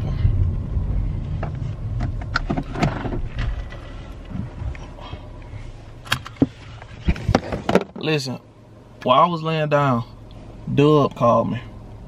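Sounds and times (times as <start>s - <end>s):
car rumbling: 0.0s - 12.0s.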